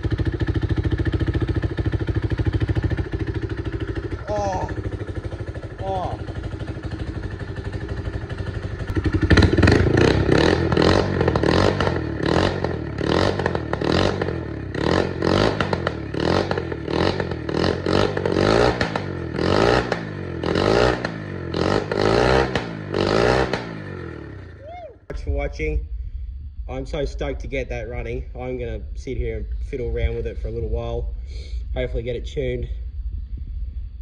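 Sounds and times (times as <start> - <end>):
motorcycle engine revving: 0.0 - 25.6.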